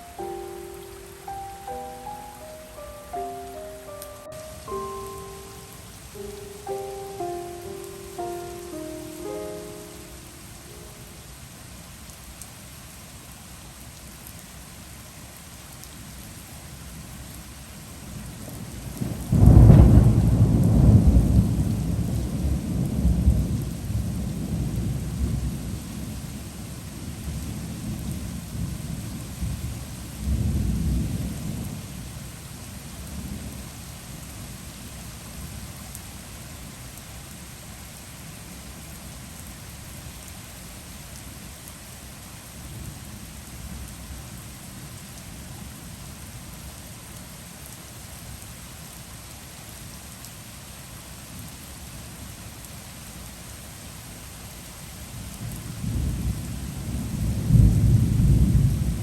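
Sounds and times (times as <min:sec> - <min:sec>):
heavy rain falling: 0:00.0 - 0:59.0
thunder rumbling: 0:19.0 - 0:25.4.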